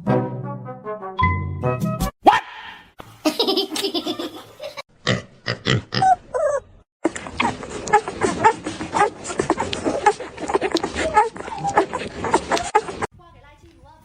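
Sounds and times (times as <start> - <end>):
laughter: 3.2 - 4.8
pet animal vocalizing: 5.7 - 13.1.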